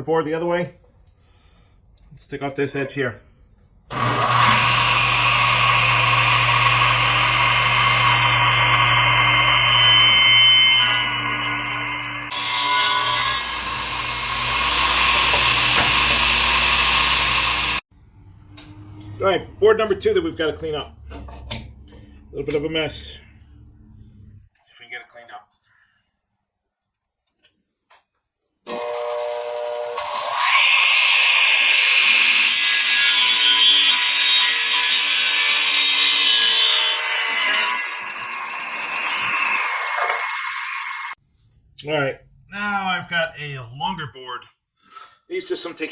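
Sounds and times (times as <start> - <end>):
machine cutting board: 3.9 - 17.8, 28.7 - 41.2
woodworking machine motor whine: 3.9 - 19.4, 28.7 - 32.4.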